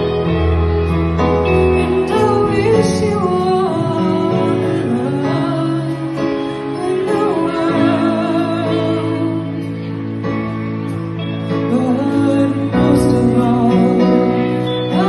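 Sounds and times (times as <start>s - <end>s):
band accompaniment: 0.0s - 15.0s
female vocal singing: 2.0s - 9.7s.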